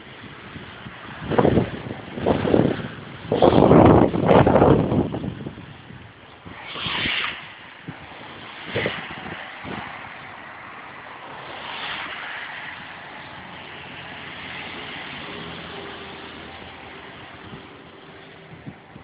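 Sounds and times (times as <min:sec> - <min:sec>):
rain: 0:00.0 - 0:19.0
vehicles passing on wet road: 0:00.0 - 0:19.0
wind: 0:00.0 - 0:19.0.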